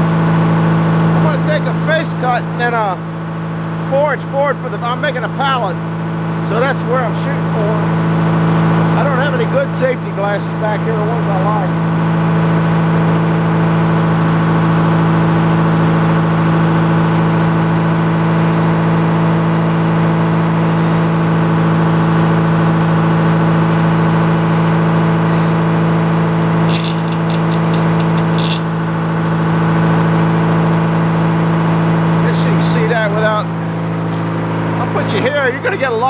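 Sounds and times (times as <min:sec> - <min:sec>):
gasoline engine idling: 0:00.0 - 0:36.0
quick clicks: 0:26.4 - 0:29.4.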